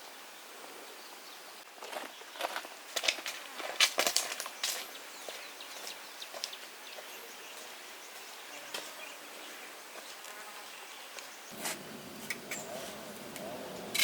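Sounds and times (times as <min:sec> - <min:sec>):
outdoor background: 0:00.0 - 0:14.0
insects buzzing: 0:00.2 - 0:14.0.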